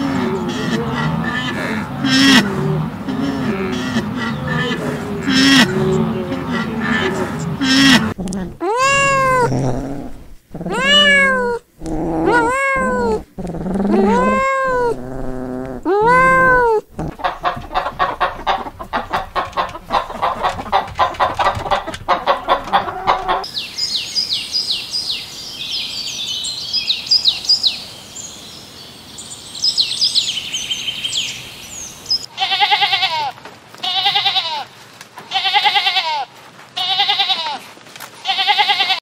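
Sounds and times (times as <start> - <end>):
chickens clucking: 0.0 - 9.7, 16.1 - 23.5
kittens meowing: 3.5 - 18.1.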